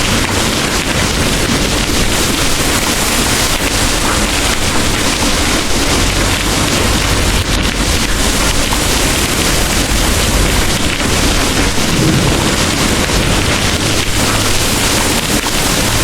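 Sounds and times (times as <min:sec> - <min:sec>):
heavy rain pouring: 0:00.0 - 0:16.0
distant thunder rumbling: 0:03.7 - 0:16.0.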